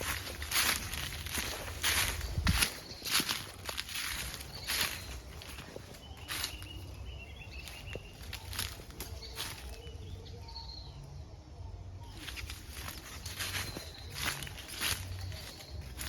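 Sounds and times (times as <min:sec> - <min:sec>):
footsteps in leaf litter: 0:00.0 - 0:10.4, 0:12.0 - 0:16.0
faint high bird calls: 0:00.0 - 0:11.2.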